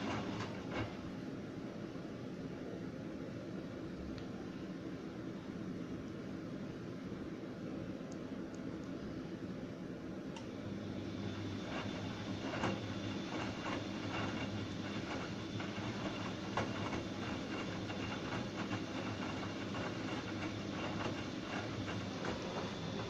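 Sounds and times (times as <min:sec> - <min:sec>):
washing machine motor hum: 0:00.0 - 0:23.0.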